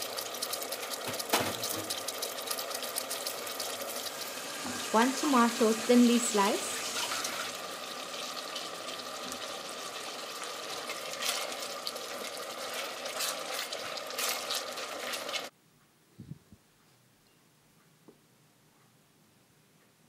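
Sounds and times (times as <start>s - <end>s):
oil spitting crackles: 0.0s - 15.5s
vegetables sizzling in hot oil: 0.0s - 15.5s.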